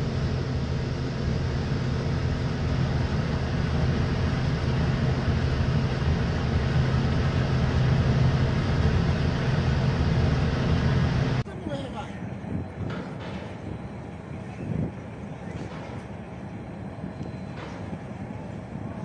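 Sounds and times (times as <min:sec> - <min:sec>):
broad rushing noise: 0:00.0 - 0:11.5
engine running: 0:00.0 - 0:11.5.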